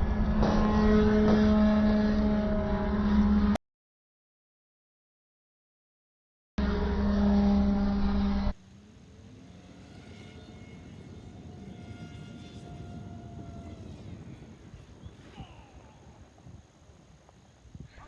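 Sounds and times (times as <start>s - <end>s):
electric motor whine: 6.6s - 16.6s
steady hiss: 14.1s - 18.0s.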